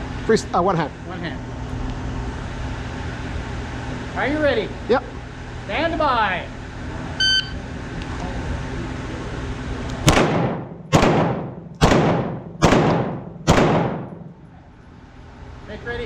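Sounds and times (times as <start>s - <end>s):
pistol shots: 10.0s - 14.3s.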